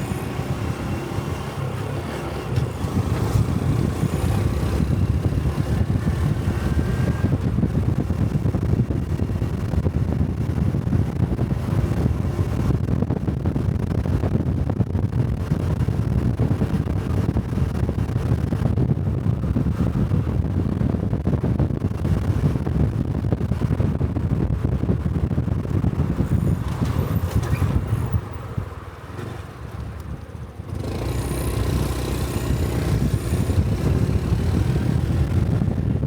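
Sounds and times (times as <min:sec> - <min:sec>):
wind buffeting microphone: 0:00.0 - 0:36.0
motorcycle engine running: 0:29.7 - 0:36.0.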